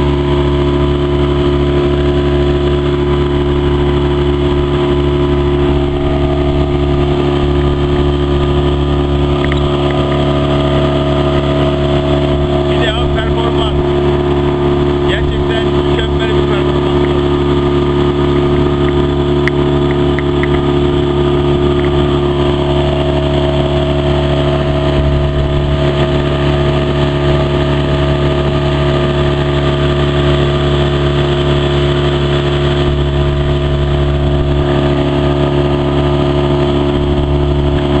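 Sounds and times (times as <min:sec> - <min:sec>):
outboard motor running: 0:00.0 - 0:38.0.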